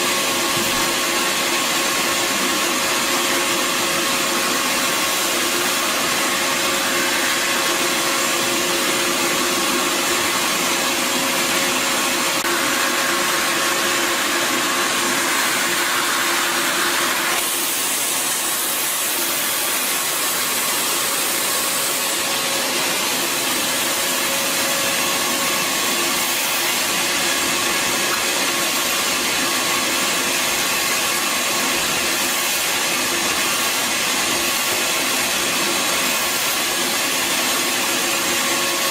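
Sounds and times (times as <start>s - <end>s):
vacuum cleaner motor whine: 0.0s - 38.9s.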